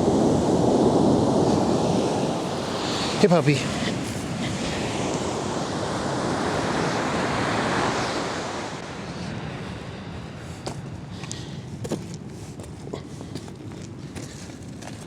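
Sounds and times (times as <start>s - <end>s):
surf washing onto beach: 0.0s - 11.2s.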